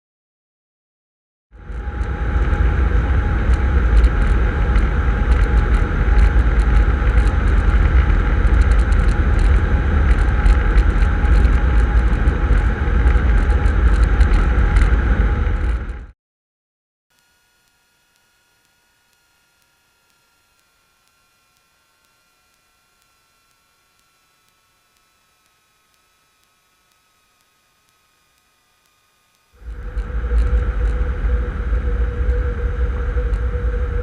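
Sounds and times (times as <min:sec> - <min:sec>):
light aircraft engine rumble: 0:01.6 - 0:16.1, 0:29.6 - 0:34.0.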